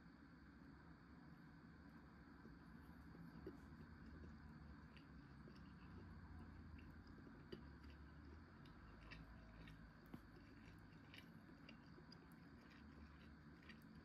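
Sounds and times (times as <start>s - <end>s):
low steady hum: 0.0s - 14.0s
person chewing: 2.8s - 14.0s.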